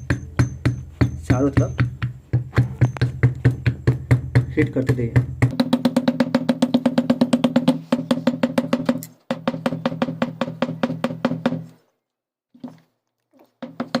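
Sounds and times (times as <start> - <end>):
glass tapping on metal: 0.0 - 3.2.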